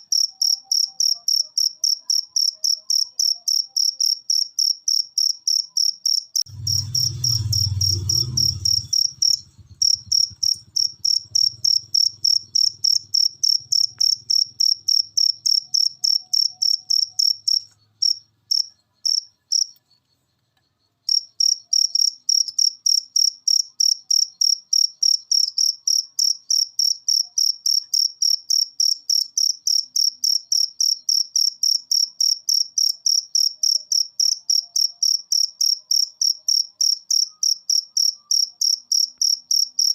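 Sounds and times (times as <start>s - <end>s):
cricket chirping: 0.0s - 39.9s
low rumble: 6.5s - 14.0s.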